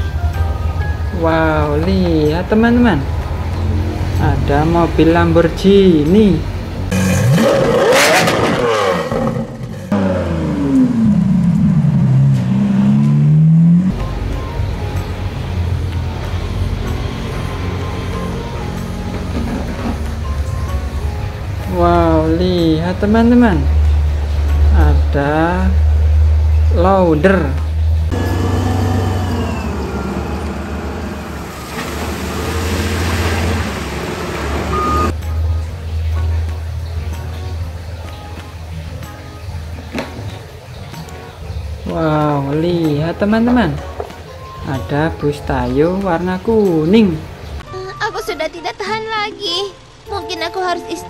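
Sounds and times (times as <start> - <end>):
sports car engine revving: 6.8 - 14.0, 28.0 - 35.2
wheel loader engine running: 27.9 - 35.2.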